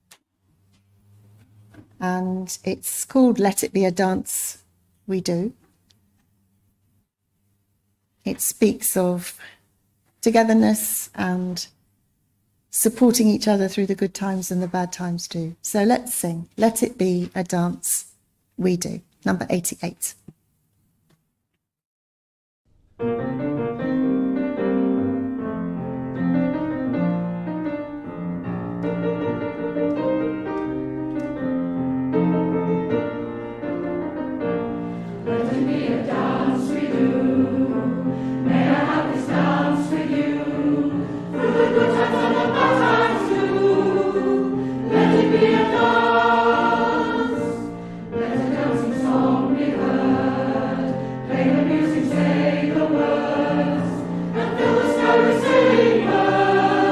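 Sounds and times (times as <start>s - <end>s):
congregation singing a hymn: 34.9s - 56.9s.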